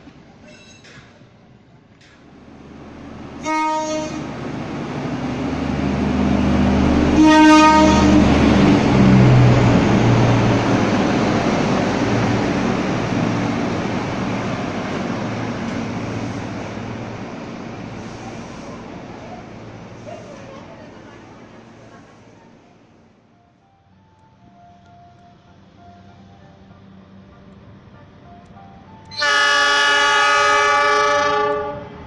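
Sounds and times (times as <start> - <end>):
train rumbling past: 0.0 - 32.0
train horn blasts: 3.4 - 4.3, 7.0 - 8.3, 29.1 - 32.0.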